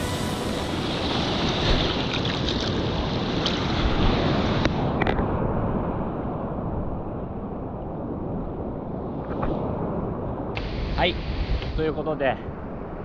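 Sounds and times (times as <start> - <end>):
surf rushing: 0.0 - 5.0, 10.6 - 12.4.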